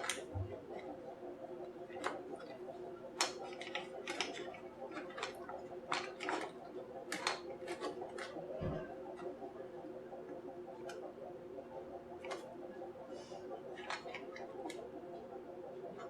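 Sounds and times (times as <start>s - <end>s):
small tools clicking and tapping: 3.2s - 6.5s, 7.1s - 8.4s.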